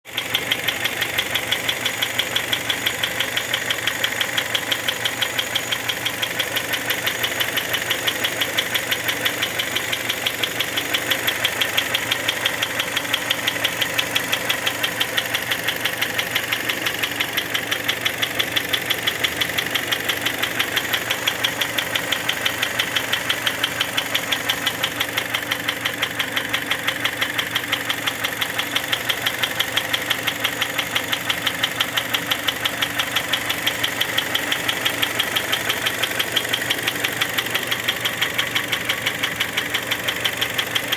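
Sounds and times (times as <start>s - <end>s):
car engine idling: 0.1s - 40.9s
rapid engine knock: 0.1s - 40.9s.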